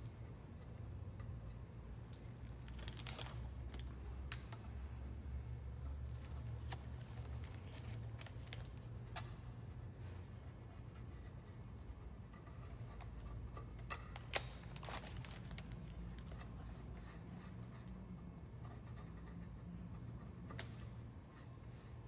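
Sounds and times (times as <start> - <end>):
steady low hum: 0.0 - 22.0
masking tape peeling: 13.9 - 16.4.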